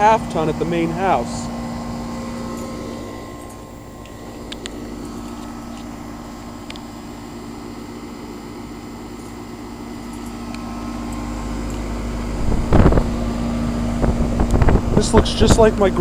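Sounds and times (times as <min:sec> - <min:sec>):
compressor hum: 0:00.0 - 0:16.0
condenser fan rushing air: 0:00.0 - 0:16.0
low rumble: 0:12.0 - 0:15.8.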